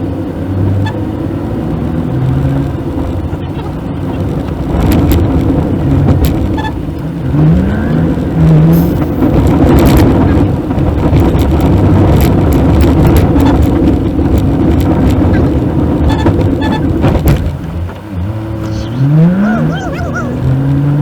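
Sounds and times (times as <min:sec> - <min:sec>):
car engine and road noise: 0:00.0 - 0:21.0
knocks and rattles: 0:08.7 - 0:18.0.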